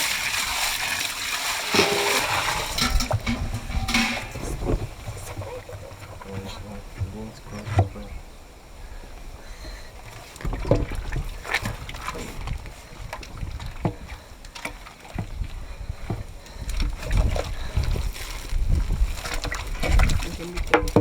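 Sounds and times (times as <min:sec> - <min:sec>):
knocks and splashes: 0:00.0 - 0:08.1, 0:10.1 - 0:21.0
stick sloshing through slurry: 0:16.9 - 0:20.6.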